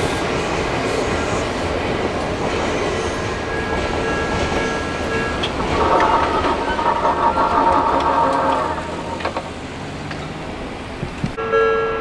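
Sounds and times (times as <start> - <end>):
train rumbling on rails: 0.0 - 11.5
wheels clicking on track: 2.1 - 11.4.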